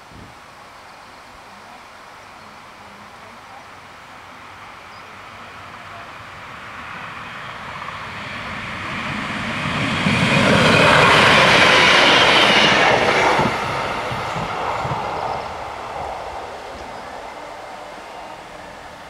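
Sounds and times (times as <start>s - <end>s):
diesel train passing: 3.8s - 19.0s.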